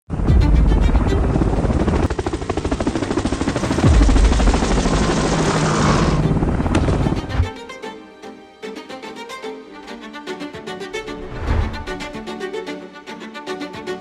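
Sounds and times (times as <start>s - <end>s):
helicopter rotors chopping: 0.1s - 7.5s.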